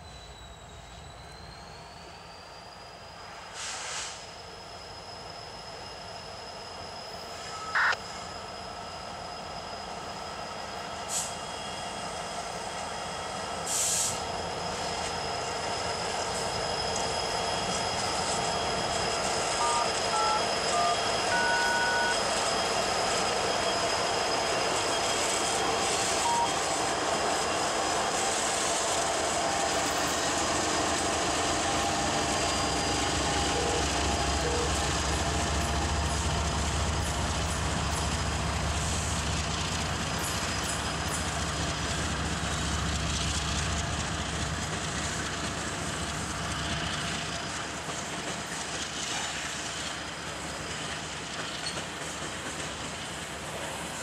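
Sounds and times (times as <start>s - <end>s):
diesel locomotive drone: 0.0s - 54.0s
short high tones: 7.4s - 8.0s, 19.5s - 22.7s, 25.4s - 26.6s, 31.8s - 36.1s.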